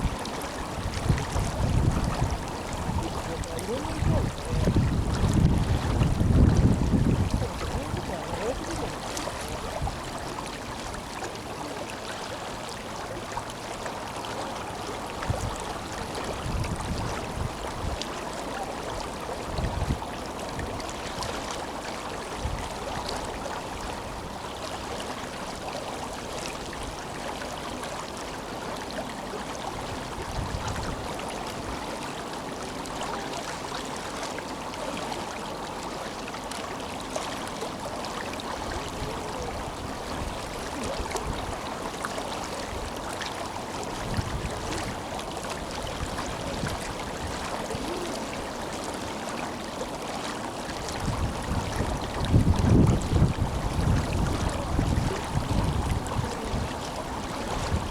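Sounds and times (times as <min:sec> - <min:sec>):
wind bumps on microphone: 0:00.0 - 0:10.0, 0:16.3 - 0:18.0, 0:44.0 - 0:45.0, 0:51.0 - 0:56.9
river water rushing: 0:00.0 - 0:57.9.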